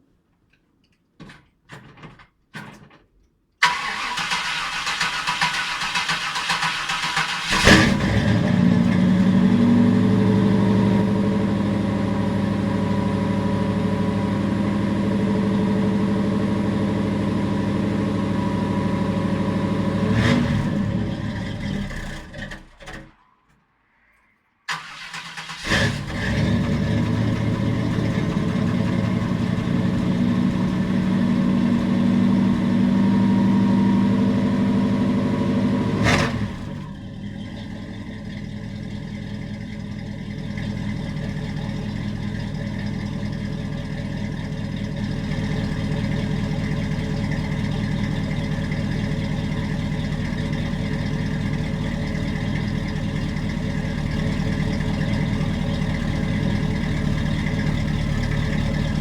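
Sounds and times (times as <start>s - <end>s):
click: 0.3s - 3.4s
car engine starting and idling: 3.6s - 23.4s, 24.7s - 59.0s.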